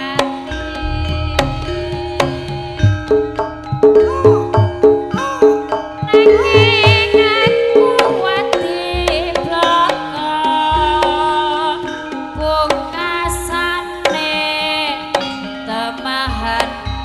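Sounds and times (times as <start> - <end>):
person singing with vibrato: 0.0 - 11.9
hand drum strokes: 0.0 - 14.3
sustained instrument tones: 0.5 - 10.1
deep bass thumps: 0.8 - 4.8.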